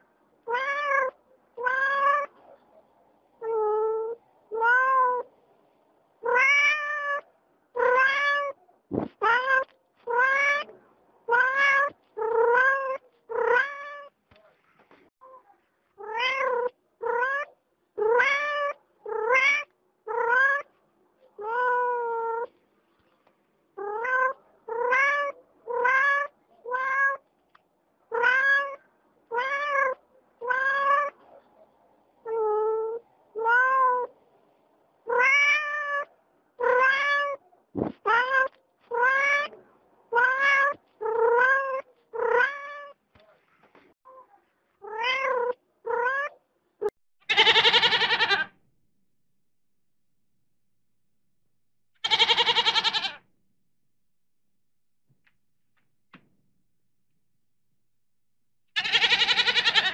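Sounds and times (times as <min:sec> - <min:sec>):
cat meowing: 0:00.4 - 0:02.4, 0:03.4 - 0:05.3, 0:06.2 - 0:07.2, 0:07.8 - 0:08.6, 0:09.2 - 0:10.7, 0:11.3 - 0:14.2, 0:16.0 - 0:20.7, 0:21.4 - 0:22.5, 0:23.8 - 0:27.2, 0:28.1 - 0:31.2, 0:32.2 - 0:34.1, 0:35.1 - 0:37.4, 0:38.0 - 0:43.0, 0:44.8 - 0:46.5, 0:47.3 - 0:48.5, 0:52.0 - 0:53.2, 0:58.8 - 0:59.9.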